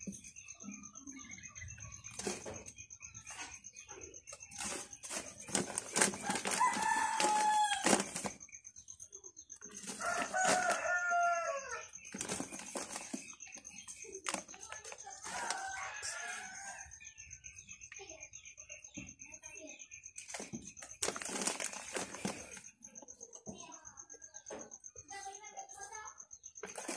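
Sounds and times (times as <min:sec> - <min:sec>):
rooster crowing: 0:06.2 - 0:08.0, 0:09.9 - 0:12.0, 0:15.2 - 0:17.0.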